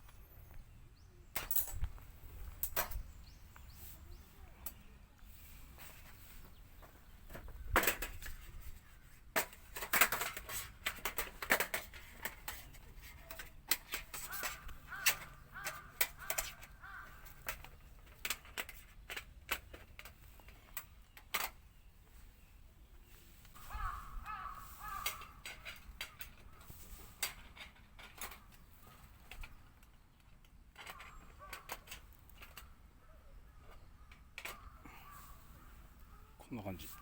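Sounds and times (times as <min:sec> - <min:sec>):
metal parts clicking and clanking: 0:01.3 - 0:03.1, 0:09.3 - 0:21.7, 0:24.7 - 0:32.7, 0:33.6 - 0:34.8.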